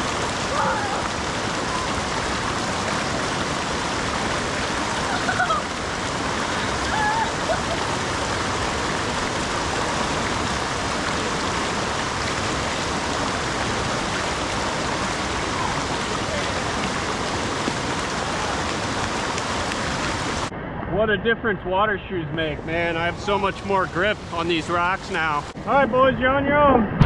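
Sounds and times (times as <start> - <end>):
river rushing over rocks: 0.0 - 20.5.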